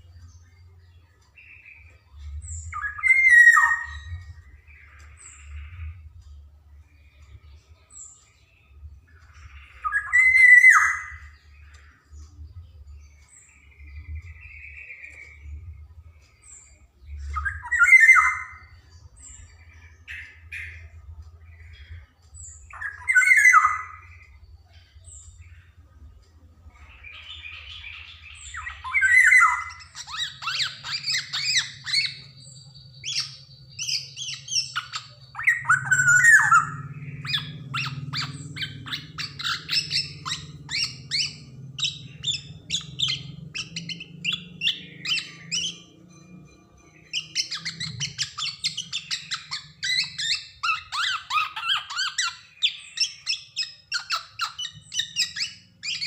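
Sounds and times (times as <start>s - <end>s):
bird harsh calls: 0.0s - 56.0s
faint low hum: 0.0s - 56.0s
bird chattering: 16.3s - 25.8s, 26.7s - 56.0s.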